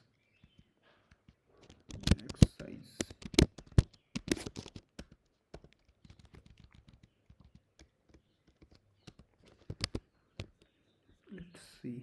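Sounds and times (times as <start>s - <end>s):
keyboard typing clicks: 1.6s - 10.6s.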